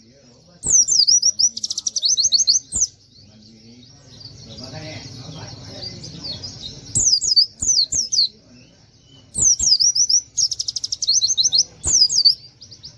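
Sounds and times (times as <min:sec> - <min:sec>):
bird whistling song: 0:00.0 - 0:03.2, 0:05.7 - 0:12.9.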